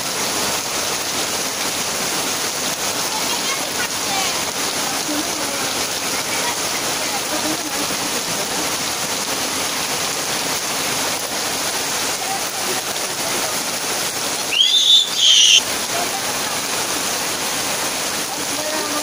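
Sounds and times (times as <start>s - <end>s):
heavy rain on a tin roof: 0.0s - 19.0s
loud high-pitched rising call: 14.4s - 15.6s.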